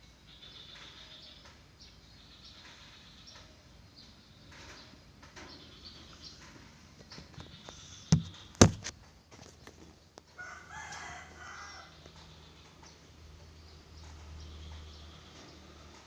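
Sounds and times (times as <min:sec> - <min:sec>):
sharp knocks: 0:08.1 - 0:08.9.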